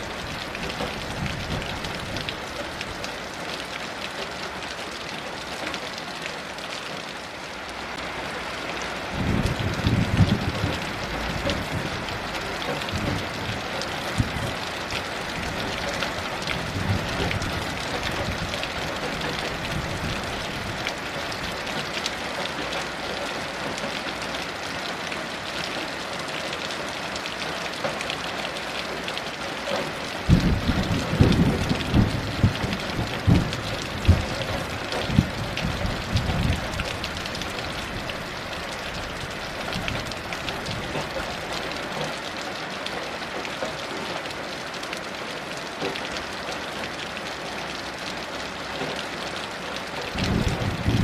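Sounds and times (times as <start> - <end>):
heavy rain: 0.0 - 51.0
thunder rumbling: 9.1 - 14.6, 16.5 - 20.8, 30.2 - 41.1, 50.1 - 51.0.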